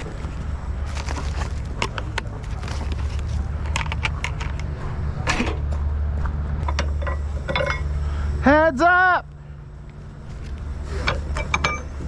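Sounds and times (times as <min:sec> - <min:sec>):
forklift engine running: 0:00.0 - 0:12.0
metal clicks and clanks: 0:01.8 - 0:05.8, 0:06.6 - 0:07.9, 0:11.0 - 0:12.0.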